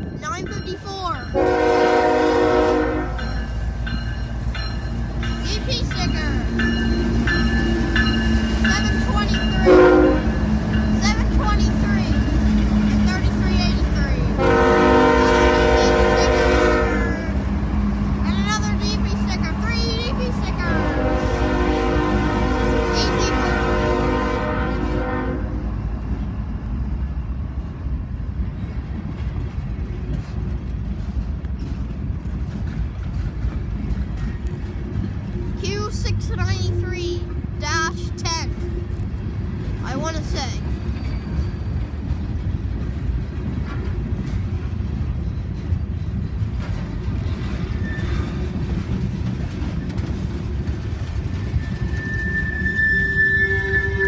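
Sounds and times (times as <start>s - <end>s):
train wheels rumbling on rail: 0.0s - 54.0s
train horn: 1.3s - 3.3s, 9.6s - 10.4s, 14.4s - 17.4s, 20.6s - 25.8s, 51.8s - 54.0s
high-pitched wheel squeal: 51.4s - 54.0s.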